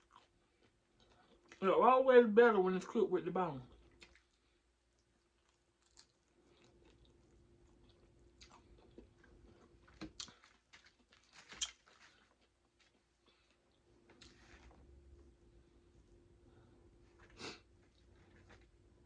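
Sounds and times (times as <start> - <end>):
chewing and biting food: 3.7 - 4.4, 5.0 - 14.4.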